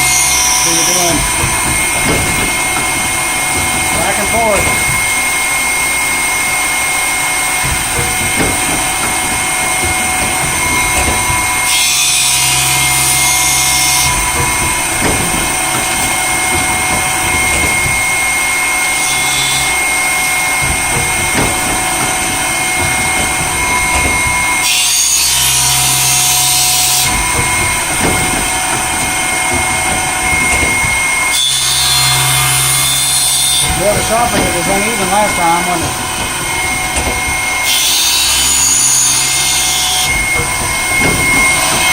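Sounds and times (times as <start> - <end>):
grinder motor whine: 0.0 - 41.9
grinding wheel hiss: 0.0 - 41.9.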